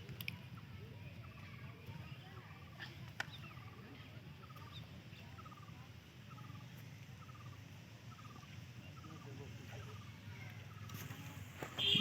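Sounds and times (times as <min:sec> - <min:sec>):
small animal trilled call: 0:03.4 - 0:10.8.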